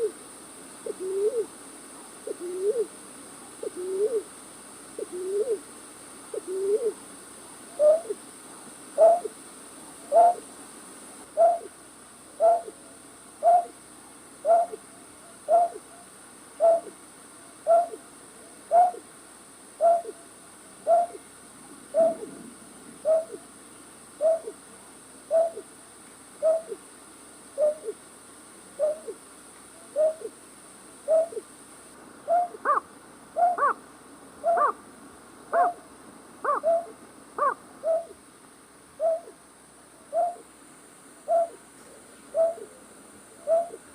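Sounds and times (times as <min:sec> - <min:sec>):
night bird hooting call: 0:00.8 - 0:01.5, 0:02.3 - 0:02.9, 0:03.6 - 0:04.3, 0:05.0 - 0:05.6, 0:06.3 - 0:07.0, 0:07.8 - 0:08.2, 0:09.0 - 0:09.4, 0:10.1 - 0:10.5, 0:11.3 - 0:11.8, 0:12.4 - 0:12.8, 0:13.4 - 0:13.8, 0:14.4 - 0:17.0, 0:17.6 - 0:18.0, 0:18.7 - 0:19.1, 0:19.8 - 0:20.2, 0:20.8 - 0:21.2, 0:21.9 - 0:22.3, 0:23.0 - 0:23.5, 0:24.2 - 0:24.6, 0:25.3 - 0:25.7, 0:26.4 - 0:26.8, 0:27.6 - 0:28.0, 0:28.8 - 0:29.2, 0:29.8 - 0:30.4, 0:31.0 - 0:31.5, 0:32.2 - 0:33.8, 0:34.4 - 0:34.8, 0:35.5 - 0:35.8, 0:36.4 - 0:38.2, 0:39.0 - 0:39.4, 0:40.1 - 0:40.5, 0:41.2 - 0:41.6, 0:42.3 - 0:43.9.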